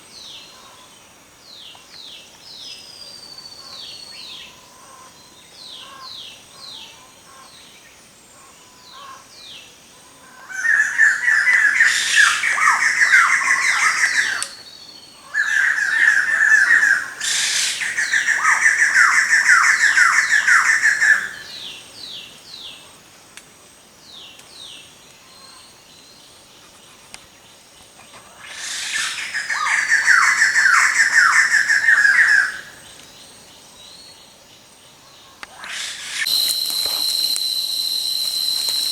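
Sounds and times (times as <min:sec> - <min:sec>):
birds chattering song: 0:10.5 - 0:22.8.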